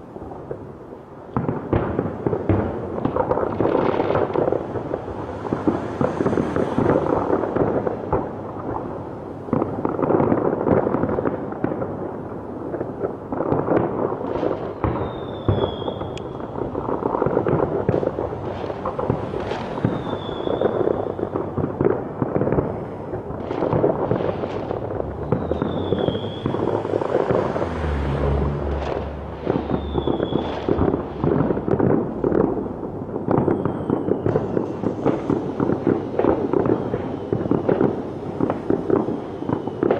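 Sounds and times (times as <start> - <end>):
fireworks crackling and popping: 0.0 - 39.9
firework falling whistle: 14.5 - 21.8, 23.6 - 39.9.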